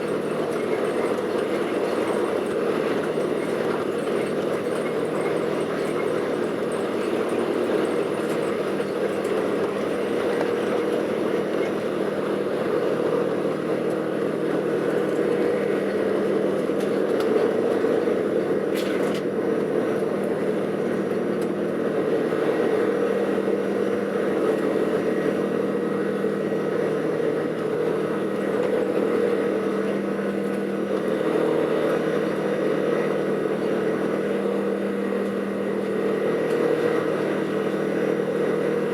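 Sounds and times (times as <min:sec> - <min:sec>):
aircraft engines at low thrust: 0:00.0 - 0:38.9.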